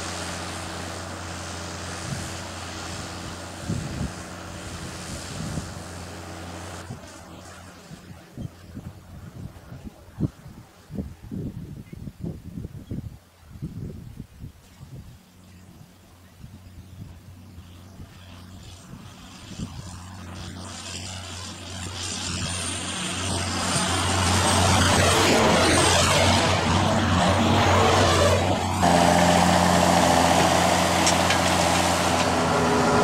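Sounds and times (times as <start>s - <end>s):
vehicle engine: 0.0s - 10.0s, 16.7s - 33.0s.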